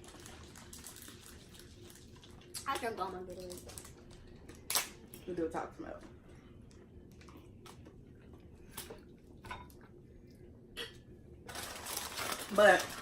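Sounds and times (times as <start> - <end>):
chewing crunchy chips: 0.0 - 2.7.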